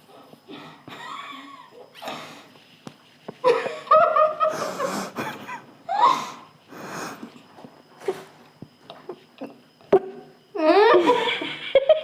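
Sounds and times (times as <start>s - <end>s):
muffled laughter: 10.0s - 12.0s.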